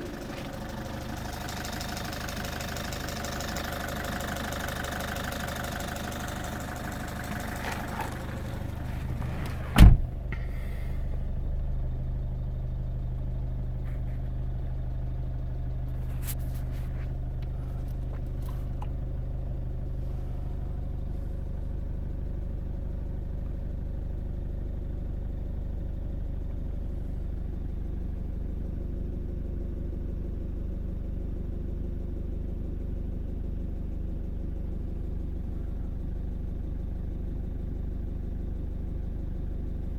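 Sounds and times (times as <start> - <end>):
diesel engine idling: 0.0 - 39.9
engine ticking clatter: 0.0 - 39.9
car door shutting: 7.4 - 11.3.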